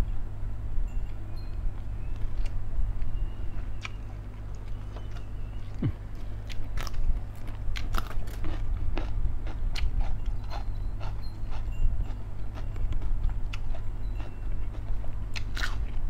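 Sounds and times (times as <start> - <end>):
person crunching raw vegetable: 3.7 - 11.7, 12.4 - 16.0.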